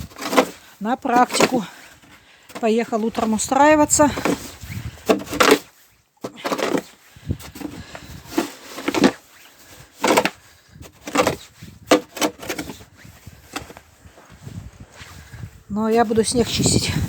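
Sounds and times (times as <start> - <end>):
snow shovel scraping snow: 0.0 - 13.8.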